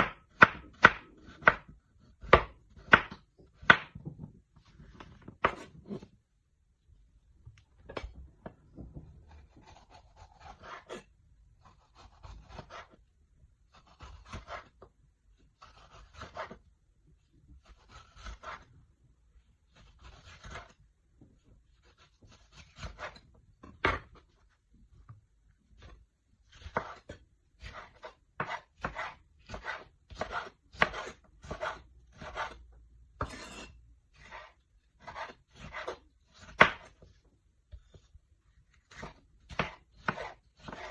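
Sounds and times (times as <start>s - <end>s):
knife cutting strokes: 9.2s - 13.0s
scraping on cutting board: 9.3s - 11.1s, 33.2s - 36.7s.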